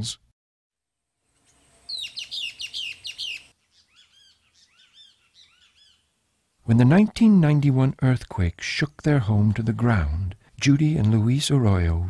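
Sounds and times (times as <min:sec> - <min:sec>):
wild birds chirping: 0:01.4 - 0:07.1.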